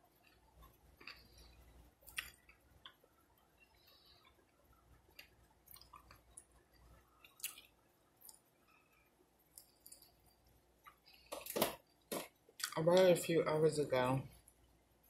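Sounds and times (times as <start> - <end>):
close-up chewing: 0.1 - 12.8
wet mouth clicks and smacks: 2.0 - 3.0, 7.2 - 8.5.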